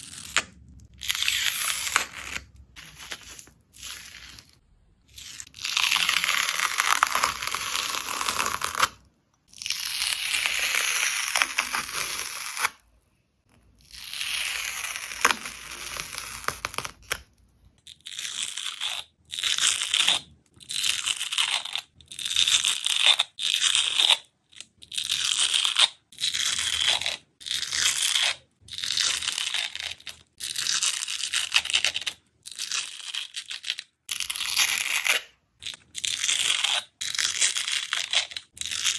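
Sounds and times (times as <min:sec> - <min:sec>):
dried slime skin tearing: 0:00.0 - 0:12.8, 0:13.8 - 0:17.3.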